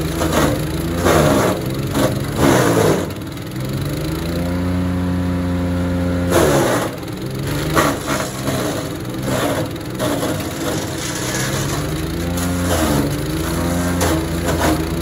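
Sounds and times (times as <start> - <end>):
wood chipper engine under load: 0.0 - 15.0
wood crunching: 6.3 - 15.0.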